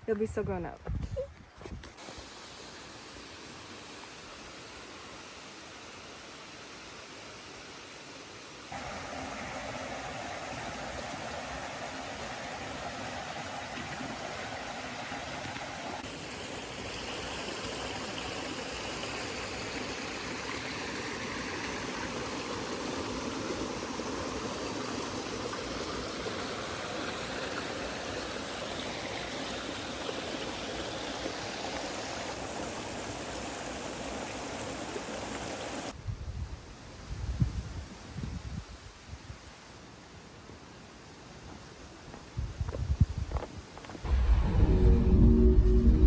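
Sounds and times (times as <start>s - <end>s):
running water rushing: 2.0s - 36.0s.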